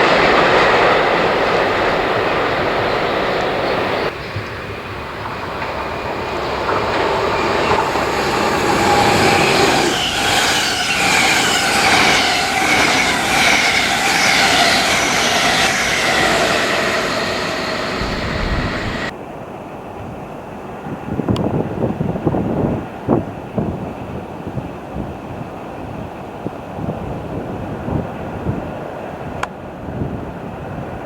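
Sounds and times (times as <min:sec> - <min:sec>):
high whine: 0:00.0 - 0:19.1
train rumble and rail noise: 0:00.0 - 0:31.0.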